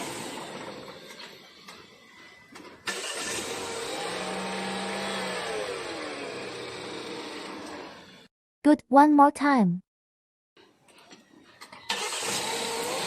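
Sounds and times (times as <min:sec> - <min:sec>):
car engine revving: 0:02.9 - 0:08.1.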